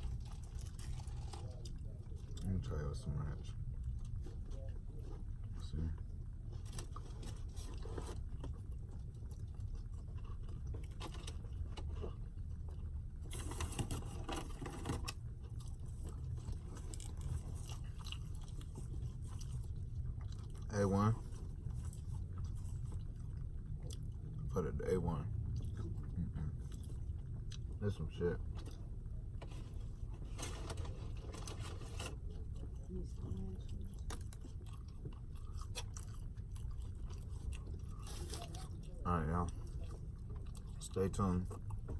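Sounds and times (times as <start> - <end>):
person chewing and biting: 0.0 - 2.5, 6.6 - 24.4, 26.6 - 27.8, 31.1 - 40.9
steady low hum: 0.0 - 41.9
steady low rumble: 0.0 - 41.9
packaging scraping and rustling: 29.6 - 32.2.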